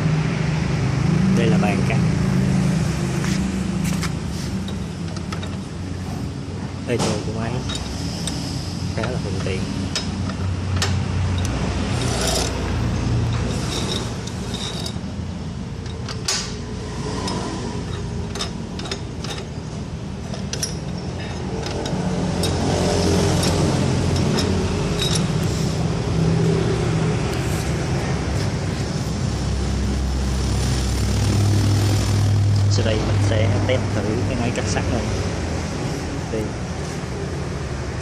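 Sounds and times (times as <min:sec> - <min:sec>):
road traffic rumble: 0:00.0 - 0:38.0.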